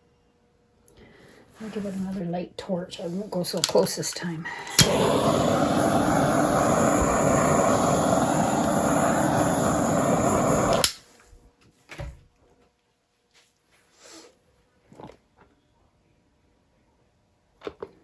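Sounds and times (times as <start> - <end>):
gas torch flame hissing: 4.5 - 11.0.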